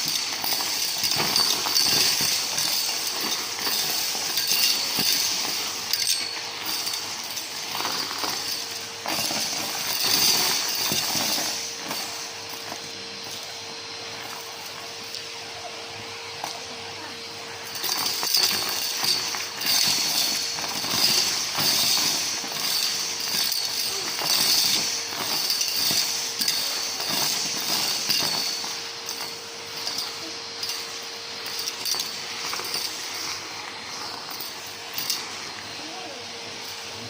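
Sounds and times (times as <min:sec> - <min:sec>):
debris rattling up vacuum hose: 0:00.0 - 0:37.0
vacuum cleaner running: 0:00.0 - 0:37.0.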